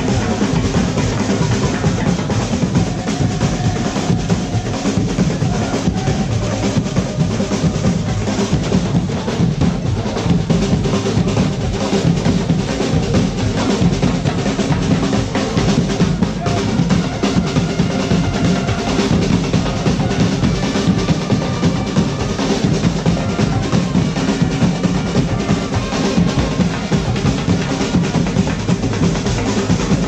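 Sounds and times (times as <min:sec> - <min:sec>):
bass drums beating: 0:00.0 - 0:30.0
snare drums beating: 0:00.0 - 0:30.0.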